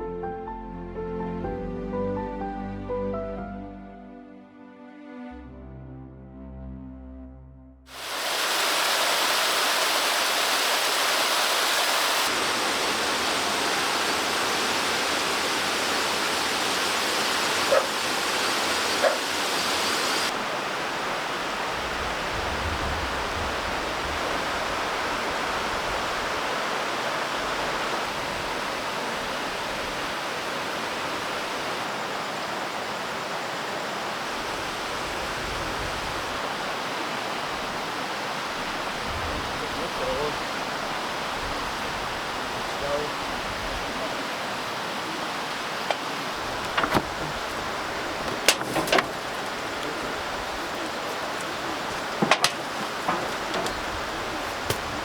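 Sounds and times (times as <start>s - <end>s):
rushing water roar: 7.9s - 55.0s
short knocks: 51.9s - 53.9s.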